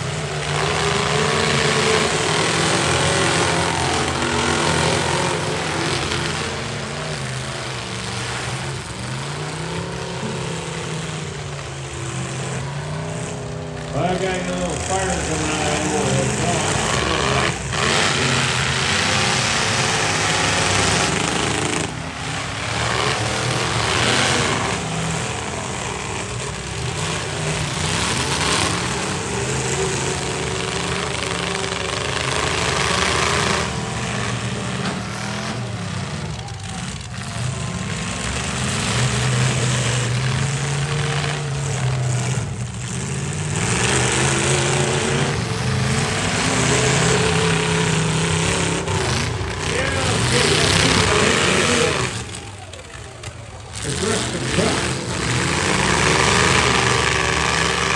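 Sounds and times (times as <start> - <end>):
truck engines revving hard: 0.0 - 57.9.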